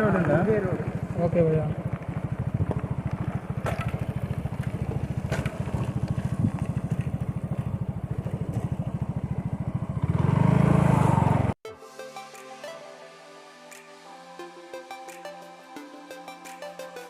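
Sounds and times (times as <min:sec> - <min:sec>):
small motorcycle engine putter: 0:02.7 - 0:08.9.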